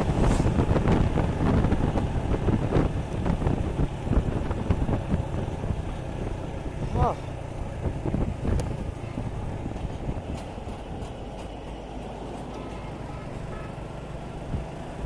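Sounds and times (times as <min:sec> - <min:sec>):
wind rush on microphone: 0:00.0 - 0:11.3, 0:14.4 - 0:15.0
motorcycle engine running: 0:00.0 - 0:15.0.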